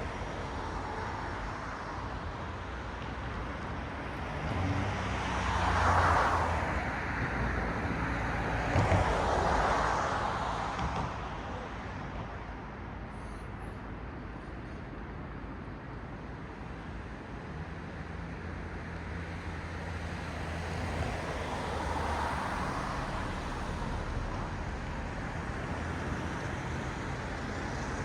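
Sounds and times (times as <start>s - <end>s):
cars passing: 0.0s - 12.2s, 18.3s - 28.0s
road traffic hum: 0.0s - 28.0s.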